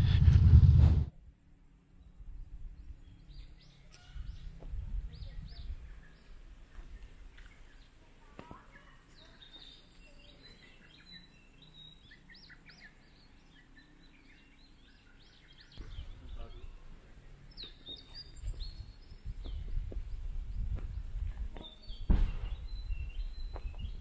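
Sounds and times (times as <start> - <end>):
low rumble: 0.0 - 3.0
small birds chirping: 1.9 - 24.0.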